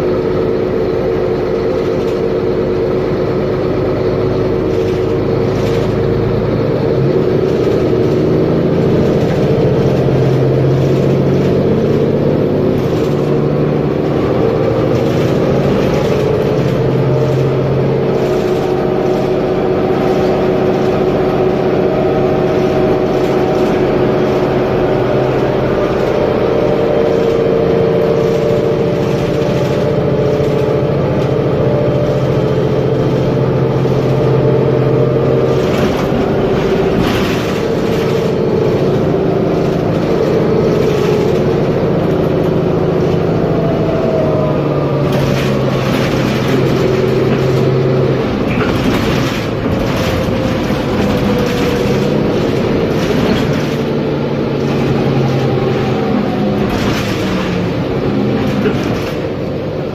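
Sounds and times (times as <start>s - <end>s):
bus diesel engine drone: 0.0s - 59.9s
short rattles: 45.0s - 59.5s.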